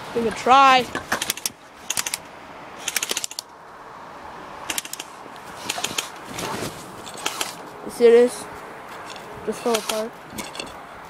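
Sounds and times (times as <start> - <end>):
quick sharp clicks and rattles: 1.0 - 2.2, 2.8 - 3.5, 4.7 - 7.6, 9.0 - 10.8.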